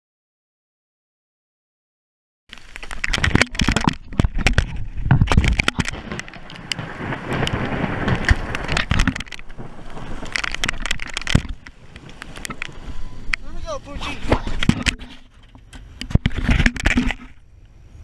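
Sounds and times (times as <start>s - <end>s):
heavy rain on metal boat: 2.5s - 17.4s
low thunder rumble: 4.6s - 13.3s
thunder cracks: 5.2s - 13.3s.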